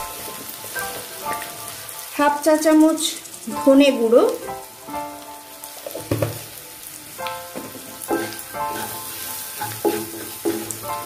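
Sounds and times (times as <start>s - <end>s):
onions sizzling in oil: 0.0s - 11.0s
wooden spatula knocking on pan: 5.8s - 6.6s, 7.5s - 11.0s.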